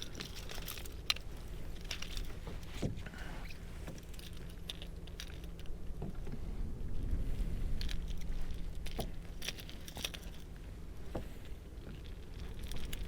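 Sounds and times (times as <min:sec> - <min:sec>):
low steady rumble: 0:00.0 - 0:13.0
metal pliers clicking and rattling: 0:08.9 - 0:10.5.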